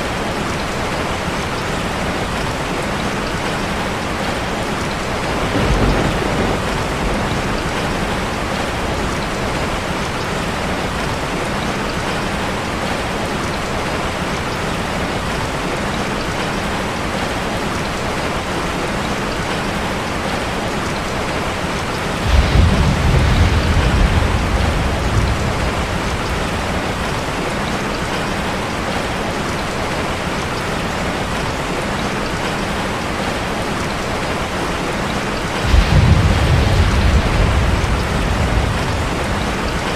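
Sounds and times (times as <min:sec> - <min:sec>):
heavy rain on a metal roof: 0:00.0 - 0:39.9
low rumble of thunder: 0:01.9 - 0:11.2, 0:21.8 - 0:28.6, 0:35.4 - 0:39.9.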